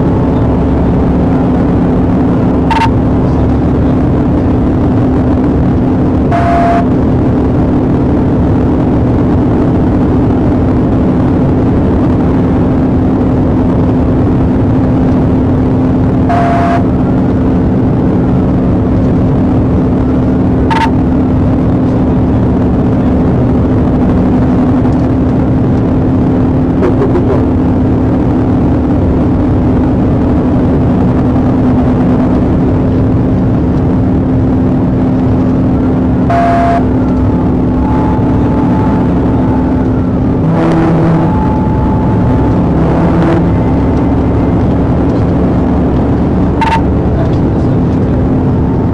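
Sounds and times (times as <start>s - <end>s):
car road and engine noise: 0.0s - 48.9s
low hum: 0.0s - 48.9s
short electronic beeps: 2.6s - 3.5s, 6.2s - 6.9s, 16.3s - 16.9s, 20.7s - 21.0s, 36.2s - 45.6s, 46.4s - 47.2s.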